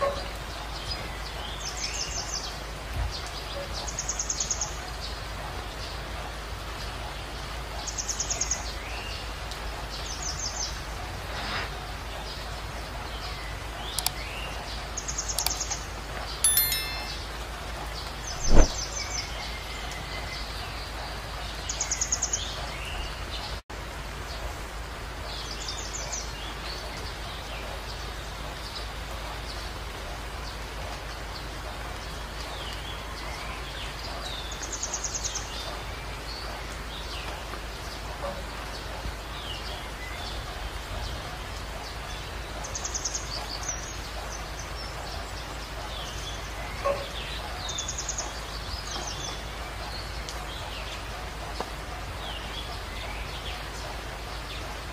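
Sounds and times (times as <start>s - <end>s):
small birds chirping: 12.2s - 17.4s
bird trill: 16.5s - 17.4s.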